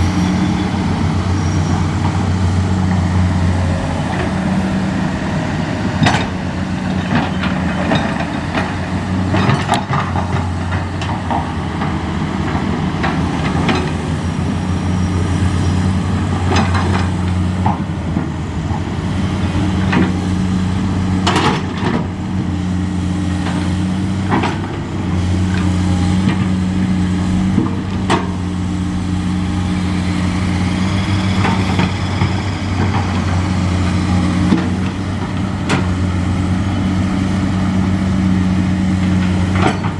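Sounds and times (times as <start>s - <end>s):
diesel truck engine idling: 0.0s - 9.3s.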